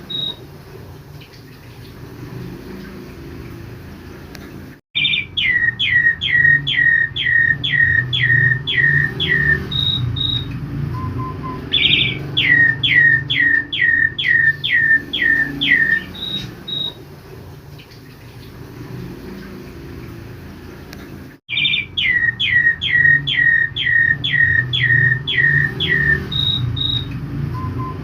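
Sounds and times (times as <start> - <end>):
bird whistling song: 0.0 - 0.4, 5.0 - 17.0, 21.5 - 28.0.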